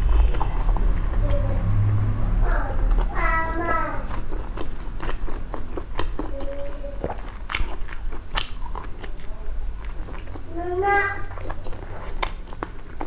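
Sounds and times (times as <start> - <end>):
wet mouth clicks chewing: 4.1 - 10.5
crunchy bites: 7.0 - 10.3.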